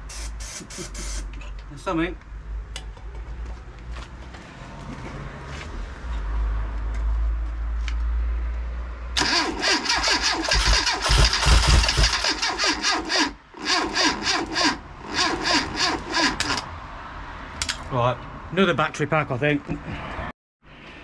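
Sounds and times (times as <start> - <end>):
engine firing raggedly: 9.2 - 16.7
starter motor cranking engine: 9.2 - 16.7.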